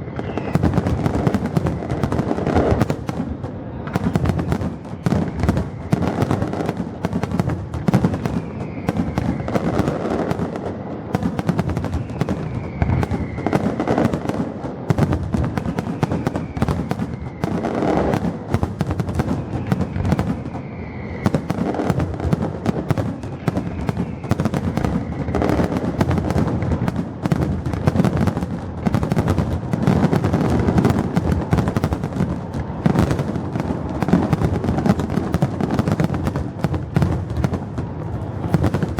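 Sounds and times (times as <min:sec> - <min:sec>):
faint falling whistles: 0:00.0 - 0:02.2, 0:08.0 - 0:10.2, 0:11.8 - 0:14.1, 0:15.6 - 0:18.2, 0:19.4 - 0:22.0
fireworks bangs and crackling: 0:00.0 - 0:38.9.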